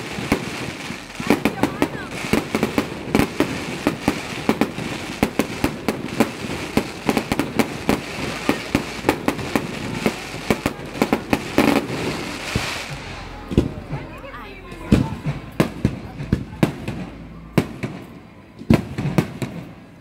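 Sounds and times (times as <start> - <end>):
steady hiss: 0.0 - 14.0
fireworks bangs and pops: 0.0 - 20.0.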